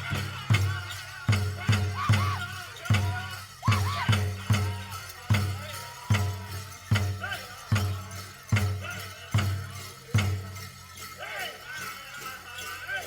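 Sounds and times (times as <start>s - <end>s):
high voices singing: 0.0s - 13.0s.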